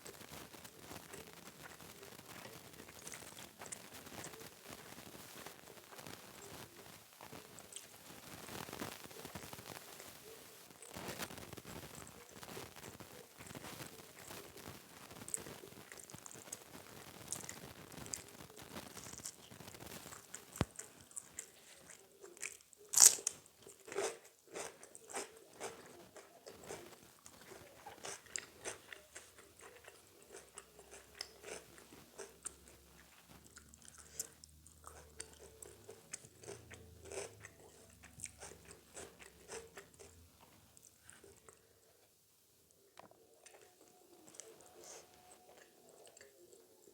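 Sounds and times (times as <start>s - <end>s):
crunchy chewing: 0.0s - 42.1s, 42.9s - 46.9s
crisp bite into crunchy food: 15.2s - 32.8s.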